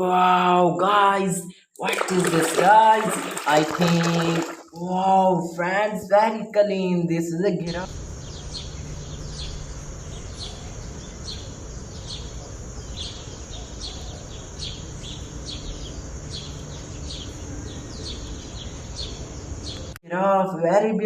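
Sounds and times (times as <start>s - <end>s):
steady background hiss: 2.2s - 20.0s
small bird chirping: 7.8s - 20.0s.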